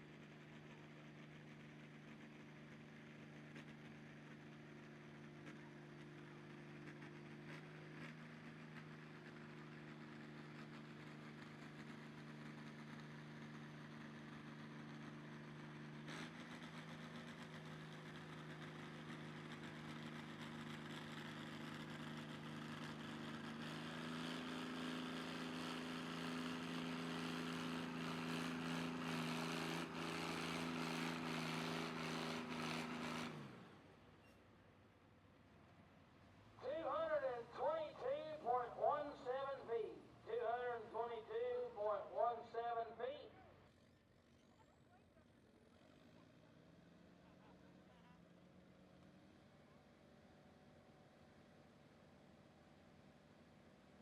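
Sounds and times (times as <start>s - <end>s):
vehicle engine at high revs: 0.0s - 34.0s.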